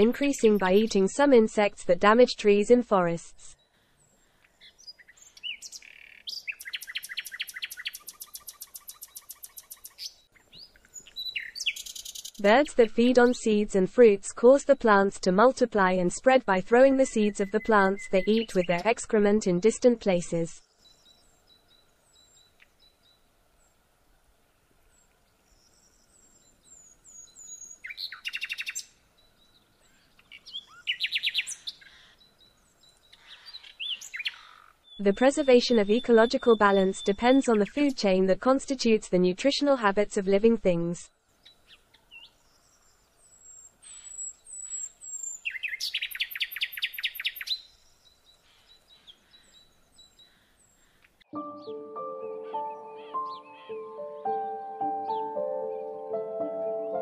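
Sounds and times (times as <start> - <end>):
bird chirps: 3.5 - 12.7, 17.2 - 19.0, 24.9 - 38.0, 41.4 - 57.0
loud rapid bird trills: 4.6 - 10.2, 27.3 - 28.8, 43.4 - 47.7
wild birds calling: 29.8 - 37.8, 48.3 - 51.2, 52.3 - 57.0.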